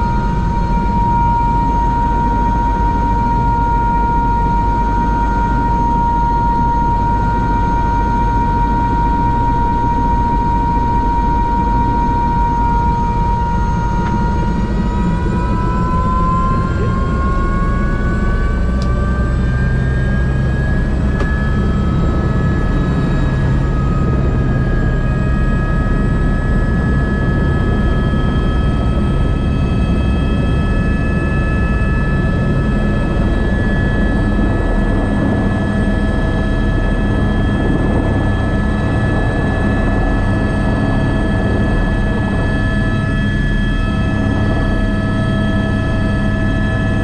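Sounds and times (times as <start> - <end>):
helicopter rotor rumble: 0.0 - 47.0
helicopter turbine whine: 0.0 - 47.0.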